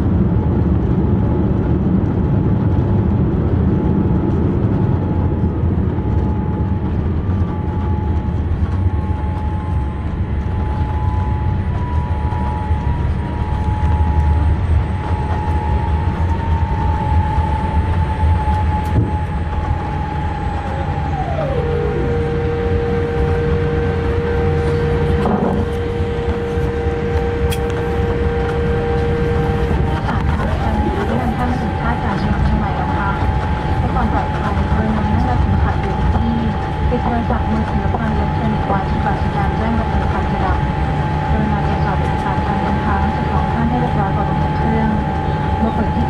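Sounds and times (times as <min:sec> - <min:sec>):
heavy low cabin rumble: 0:00.0 - 0:46.0
steady whine: 0:00.0 - 0:46.0
whine sliding down in pitch: 0:07.5 - 0:34.8.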